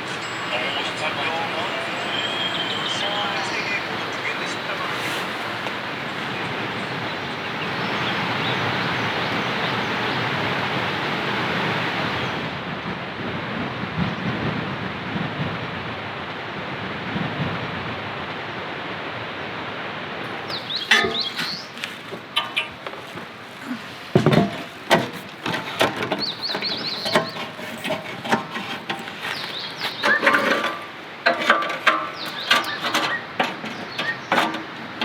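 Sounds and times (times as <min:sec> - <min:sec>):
heavy rain falling: 0:00.0 - 0:35.0
low rumble of thunder: 0:12.6 - 0:18.3
sharp knocks: 0:24.1 - 0:27.5.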